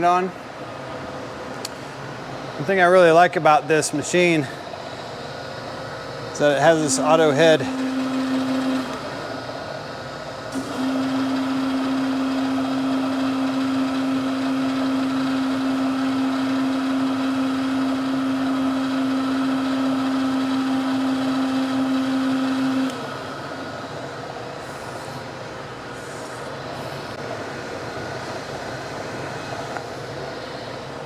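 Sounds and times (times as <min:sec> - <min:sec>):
surface grinder motor hum: 0:06.4 - 0:09.5
machine running: 0:06.4 - 0:24.5.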